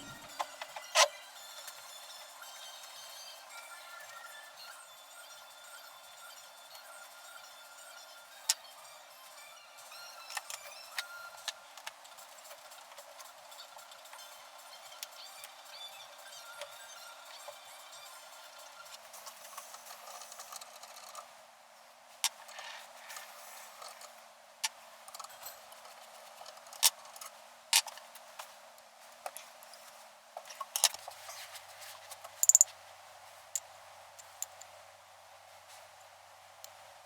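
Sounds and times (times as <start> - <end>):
tools clicking and clinking: 32.4 - 32.7, 34.2 - 34.7.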